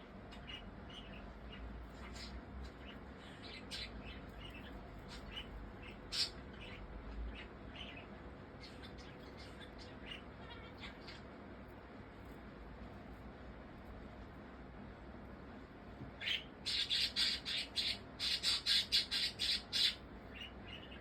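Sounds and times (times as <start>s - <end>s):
budgerigar chirping and clicking: 16.2s - 21.0s.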